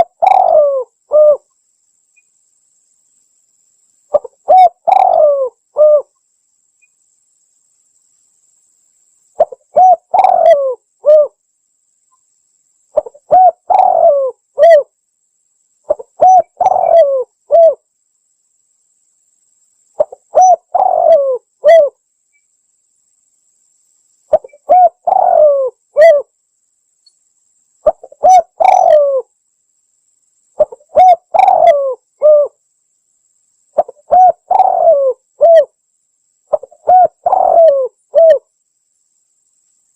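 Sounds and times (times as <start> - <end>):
dove cooing: 0.0 - 1.5, 4.1 - 6.1, 9.4 - 11.4, 13.0 - 14.9, 15.9 - 17.8, 20.0 - 22.0, 24.3 - 26.3, 27.8 - 29.3, 30.6 - 32.6, 33.8 - 35.7, 36.5 - 38.4.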